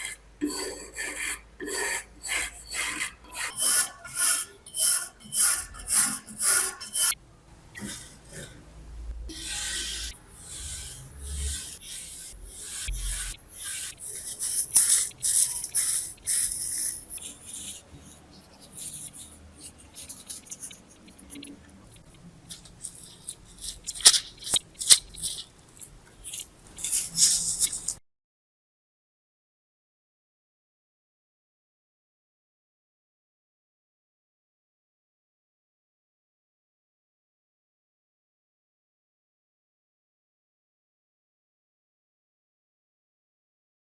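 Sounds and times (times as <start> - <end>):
hand rubbing steel knife: 0.0 - 7.2, 9.3 - 28.0.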